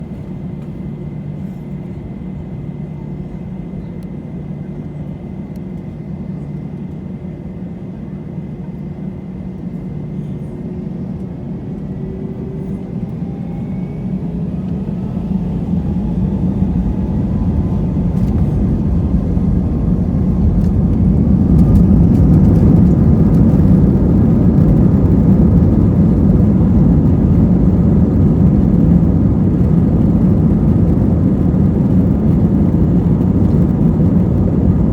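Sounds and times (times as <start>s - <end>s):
jet engines spooling up: 10.7s - 34.9s.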